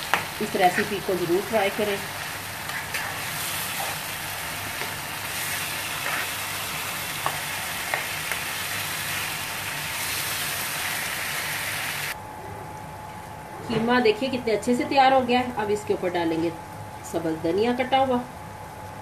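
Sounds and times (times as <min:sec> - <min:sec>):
meat sizzling in a frying pan: 0:00.0 - 0:12.2.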